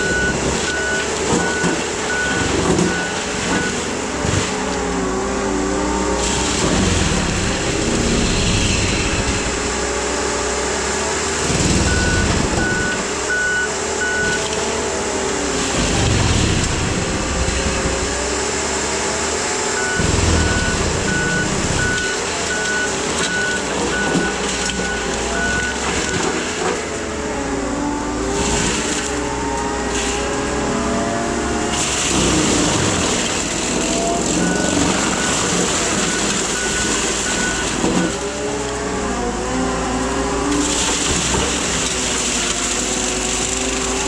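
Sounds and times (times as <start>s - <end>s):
backup alarm beeping: 0.0s - 3.9s, 11.8s - 14.4s, 19.8s - 26.2s, 34.4s - 38.2s
skid steer engine and hydraulic drone: 0.0s - 44.0s.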